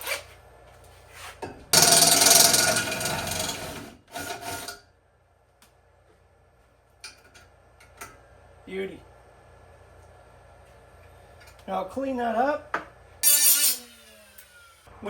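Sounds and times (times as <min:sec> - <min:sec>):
power drill cutting metal pipe: 0:01.8 - 0:04.7, 0:13.2 - 0:14.9.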